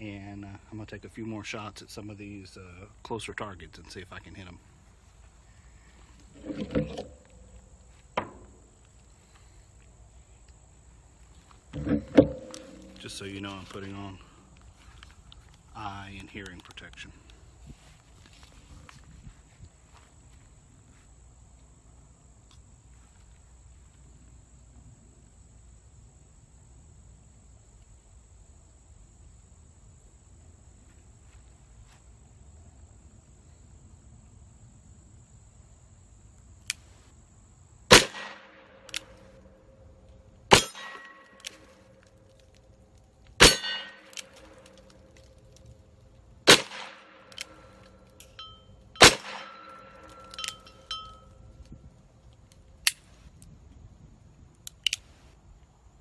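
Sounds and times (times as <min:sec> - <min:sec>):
faint high whine: 0:00.0 - 0:46.4, 0:47.0 - 0:56.0
bullet clanging steel target: 0:11.8 - 0:13.4, 0:40.5 - 0:42.0, 0:43.4 - 0:45.3, 0:46.5 - 0:51.4.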